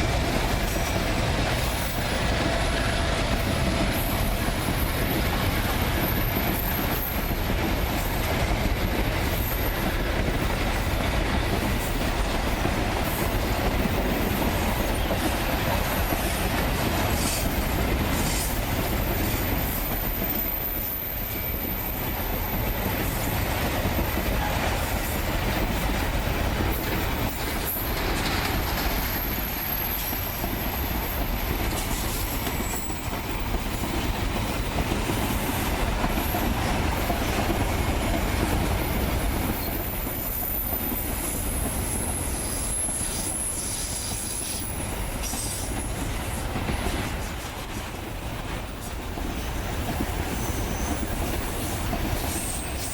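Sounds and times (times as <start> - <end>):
train wheels rumbling on rails: 0.0 - 52.9
high-pitched wheel squeal: 50.3 - 51.1.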